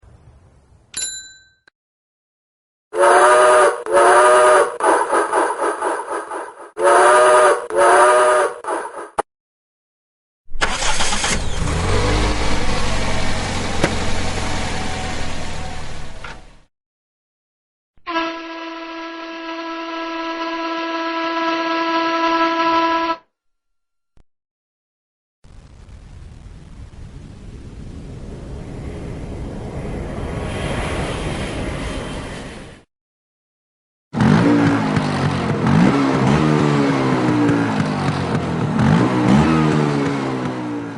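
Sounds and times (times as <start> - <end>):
short ding: 1.0 - 1.7
vehicle horn long steady note: 3.0 - 4.7, 6.8 - 8.6, 18.0 - 23.3
steam train whistle blasts: 3.0 - 4.8, 6.8 - 8.6, 18.0 - 23.2.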